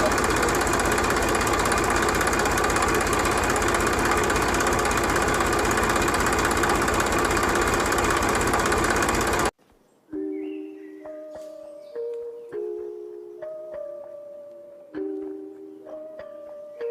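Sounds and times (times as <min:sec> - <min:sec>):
small motor running with rattle: 0:00.0 - 0:09.5.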